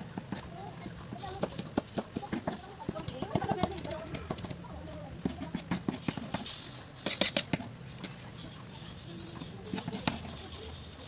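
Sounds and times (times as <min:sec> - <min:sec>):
knife scraping on cutting board: 0:05.2 - 0:08.3.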